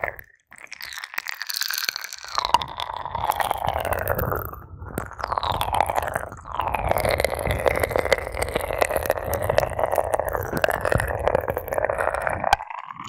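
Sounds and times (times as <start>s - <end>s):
ear pick scratching in ear: 8.2s - 12.4s.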